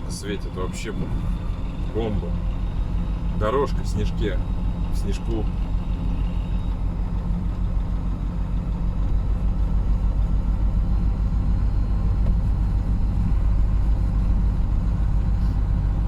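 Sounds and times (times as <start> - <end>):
truck diesel engine driving: 0.0 - 16.0.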